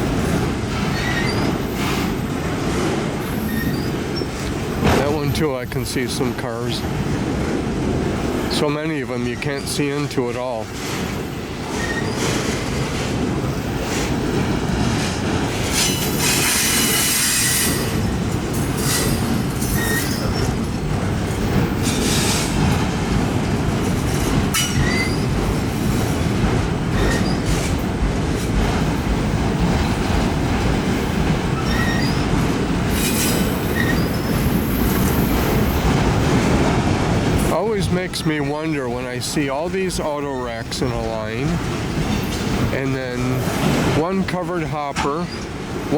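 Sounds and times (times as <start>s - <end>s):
freight train rumbling past: 0.0s - 45.9s
train wheel squeals: 0.8s - 2.3s, 3.2s - 4.4s, 10.8s - 14.1s, 15.6s - 20.6s, 24.5s - 25.4s, 26.9s - 27.8s, 31.6s - 35.7s, 45.1s - 45.6s.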